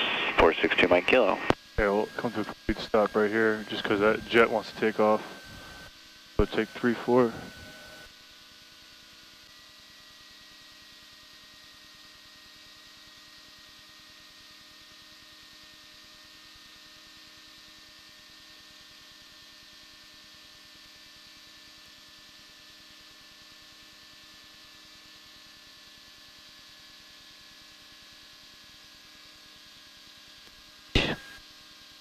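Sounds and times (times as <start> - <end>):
faint whine dropping in pitch: 0.0 - 8.1
headset intercom hiss and hum: 0.0 - 8.1, 31.0 - 31.4.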